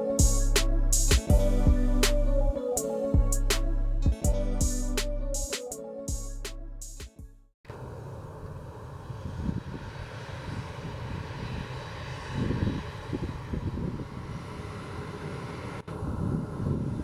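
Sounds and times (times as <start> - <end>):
jet engines rumbling: 7.7 - 17.0.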